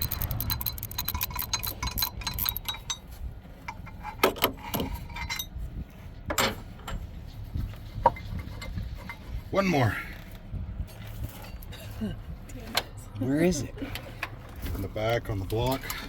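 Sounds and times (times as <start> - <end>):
rapid metallic clicking: 0.0 - 2.9
sharp metal clinks: 0.0 - 3.0.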